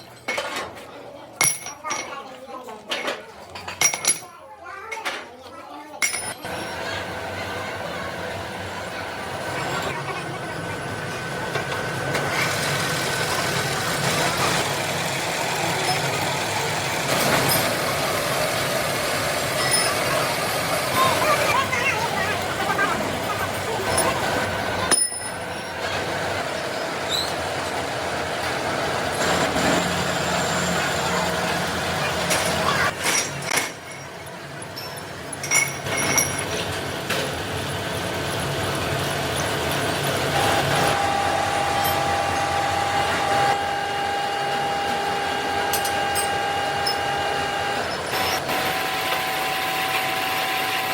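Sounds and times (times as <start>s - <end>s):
metal parts clinking: 1.4s - 2.2s, 2.9s - 4.3s, 6.0s - 6.4s, 32.3s - 36.7s
factory machinery running: 6.0s - 50.9s.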